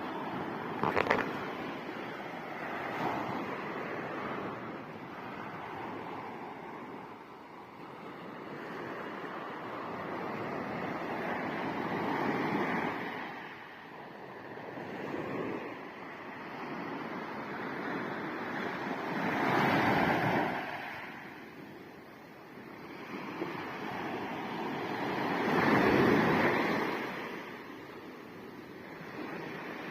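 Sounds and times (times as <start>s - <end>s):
sea waves surging: 0.0s - 29.9s.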